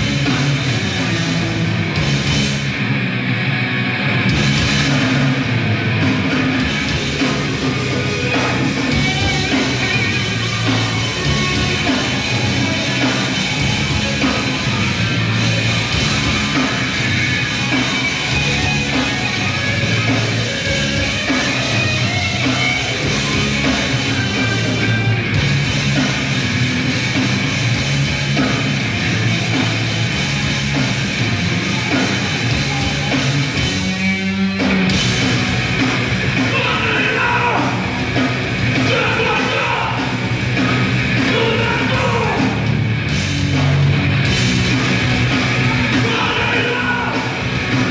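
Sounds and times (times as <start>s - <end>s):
grindcore band playing live: 0.0s - 47.9s
person yelling vocals: 36.5s - 37.8s, 38.8s - 40.1s, 41.2s - 42.6s, 45.9s - 47.4s.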